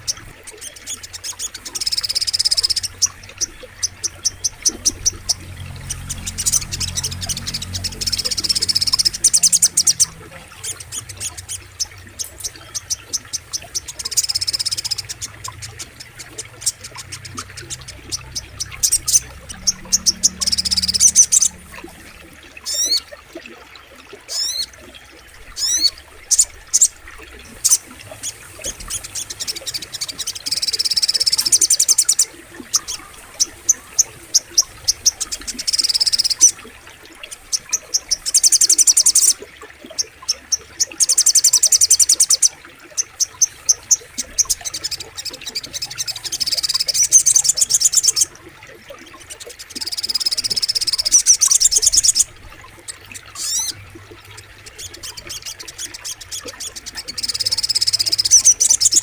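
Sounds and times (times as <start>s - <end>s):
bird rapid high chirps: 0.0s - 21.8s.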